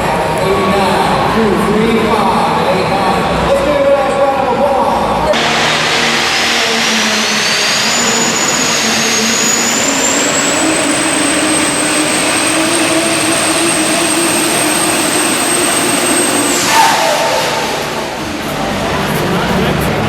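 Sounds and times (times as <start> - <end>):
diesel truck at full throttle: 5.1 - 20.0
turbocharger whine: 5.3 - 19.8.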